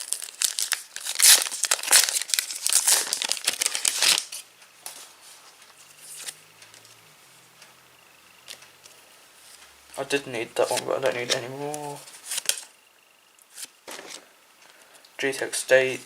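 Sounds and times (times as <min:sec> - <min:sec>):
wrapper crinkling and tearing: 0:00.0 - 0:04.4, 0:10.6 - 0:12.7
soft handling sounds: 0:08.5 - 0:12.6.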